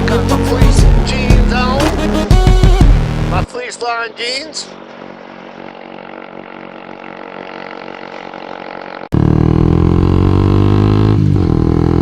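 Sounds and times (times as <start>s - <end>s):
motorcycle engine running: 4.5s - 12.0s.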